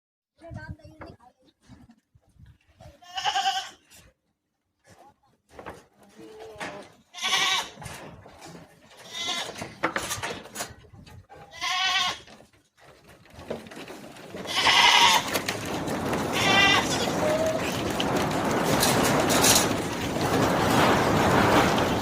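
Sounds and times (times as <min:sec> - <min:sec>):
goats bleating: 0:03.0 - 0:03.8, 0:07.1 - 0:07.8, 0:09.0 - 0:09.7, 0:11.5 - 0:12.3, 0:14.4 - 0:15.6, 0:16.2 - 0:17.7.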